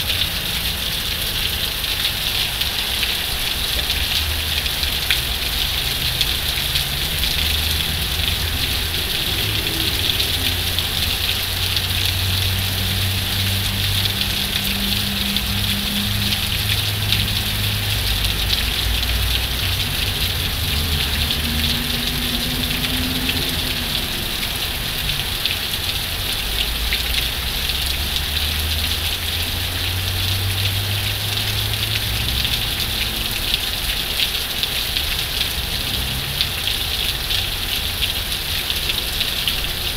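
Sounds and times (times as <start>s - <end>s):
heavy rain falling: 0.0s - 39.9s
low rumble: 6.8s - 12.6s.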